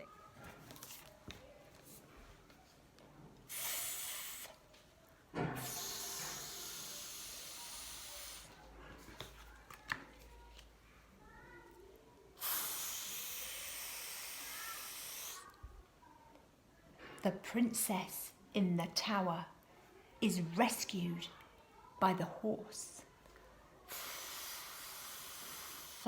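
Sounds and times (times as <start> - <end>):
breathy th hiss: 3.5 - 4.7, 5.5 - 8.6, 12.4 - 15.6, 23.9 - 26.0.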